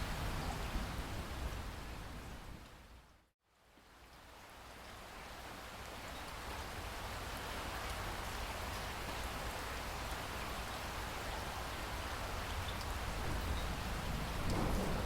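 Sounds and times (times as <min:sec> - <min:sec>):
heavy rain falling: 0:04.4 - 0:15.0
thunder rumble: 0:13.0 - 0:15.0.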